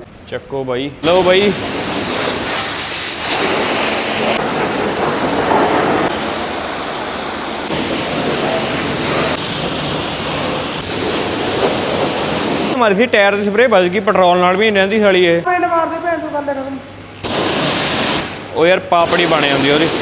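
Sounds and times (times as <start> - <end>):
pressure washer spraying: 1.0 - 12.8, 17.2 - 20.0.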